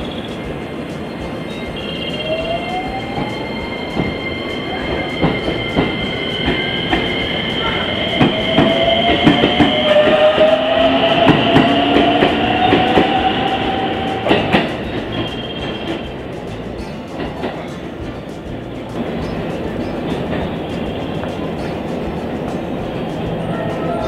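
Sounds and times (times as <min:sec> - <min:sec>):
train motor whine: 0:00.0 - 0:16.1
high squeal: 0:00.0 - 0:17.8
wheels clacking over rail joints: 0:00.0 - 0:24.0.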